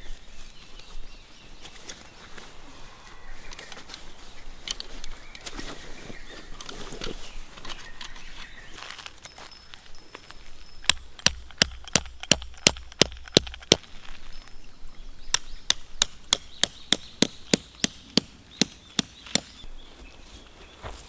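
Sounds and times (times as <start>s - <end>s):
hammer striking metal tent pegs: 10.9s - 13.8s, 15.4s - 19.6s.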